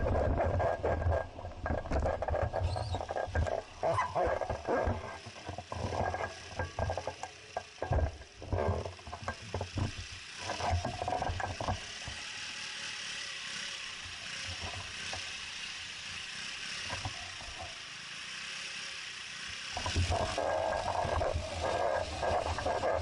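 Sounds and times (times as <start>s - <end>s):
bicycle knocks and rattles: 0.0s - 12.2s, 19.6s - 23.0s
bicycle tyres hissing: 0.0s - 23.0s.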